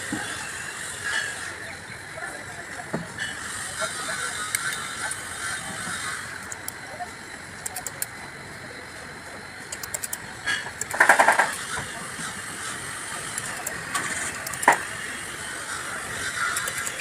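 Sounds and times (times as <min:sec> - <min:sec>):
metal tools clicking: 0:06.4 - 0:06.8, 0:07.6 - 0:08.1, 0:09.7 - 0:10.2, 0:10.8 - 0:11.5, 0:13.3 - 0:14.8, 0:16.5 - 0:17.0.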